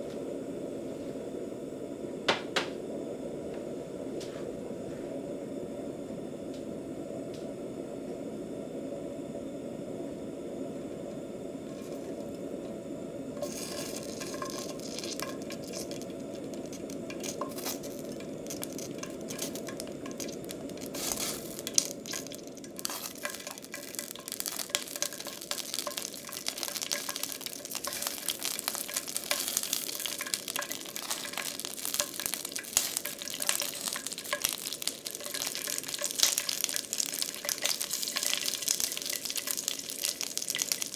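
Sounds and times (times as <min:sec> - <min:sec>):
low steady hum: 0:00.0 - 0:40.9
pepper sizzling in oil: 0:11.7 - 0:12.4, 0:13.3 - 0:40.9.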